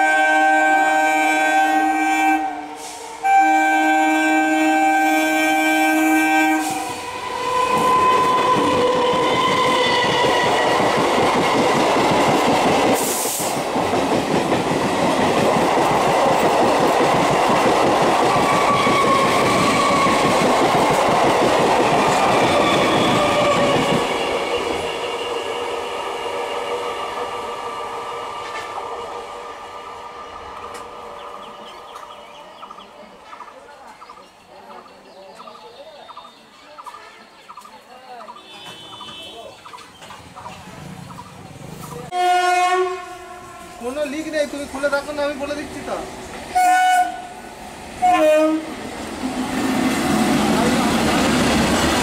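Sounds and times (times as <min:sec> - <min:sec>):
train horn: 0:00.0 - 0:10.8, 0:38.4 - 0:39.4, 0:42.1 - 0:44.0, 0:46.5 - 0:47.4, 0:48.0 - 0:48.8
sharp hiss: 0:02.7 - 0:03.2, 0:13.0 - 0:13.7
train wheels clickety-clack: 0:07.6 - 0:25.0, 0:48.8 - 0:52.0.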